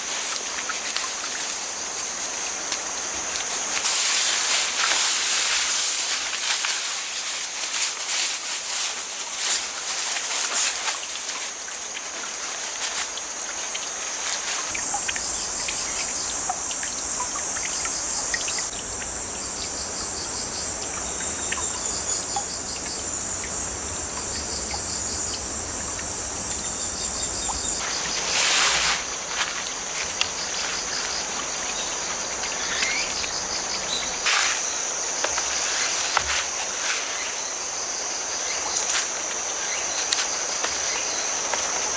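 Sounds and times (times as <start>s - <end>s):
crickets chirring: 0.0s - 41.9s
rustle: 0.0s - 41.9s
higher insect trill: 9.4s - 41.9s.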